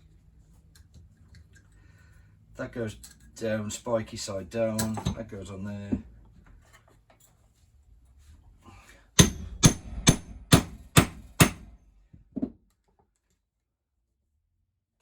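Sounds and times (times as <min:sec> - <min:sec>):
hammer striking metal punch: 0:09.2 - 0:11.8.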